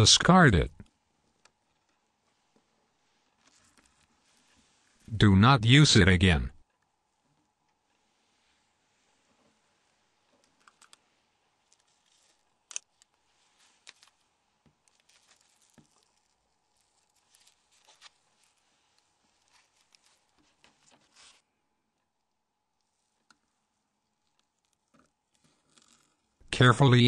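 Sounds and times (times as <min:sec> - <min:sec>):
clicks of small plastic parts: 0:12.7 - 0:13.1.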